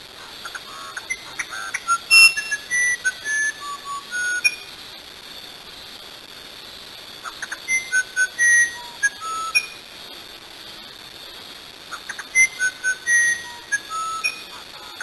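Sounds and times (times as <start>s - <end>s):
bird whistling song: 0.2s - 4.7s, 7.2s - 9.8s, 11.9s - 15.0s.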